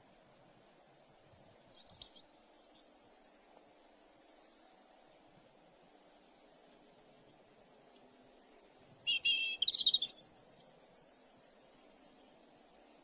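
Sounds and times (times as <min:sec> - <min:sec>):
faint outdoor background: 0:00.0 - 0:13.0
faint bird calls: 0:09.0 - 0:13.0
sharp high bird call: 0:09.1 - 0:10.2.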